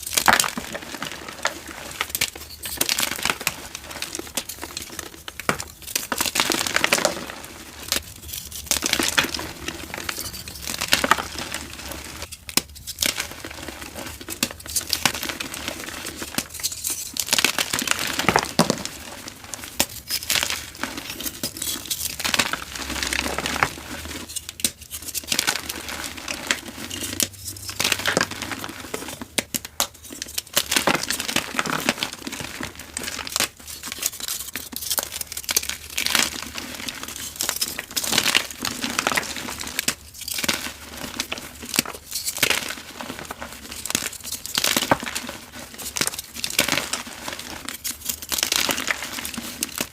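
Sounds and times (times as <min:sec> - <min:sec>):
chalk being crushed: 0:00.0 - 0:49.9.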